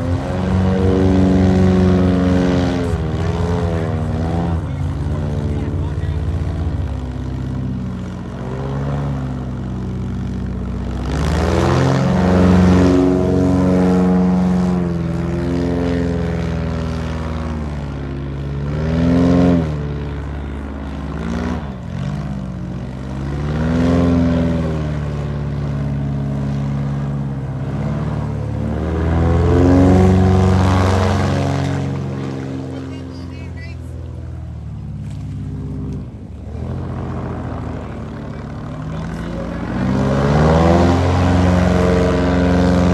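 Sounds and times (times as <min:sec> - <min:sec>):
airboat engine and propeller revving: 0:00.0 - 0:42.9.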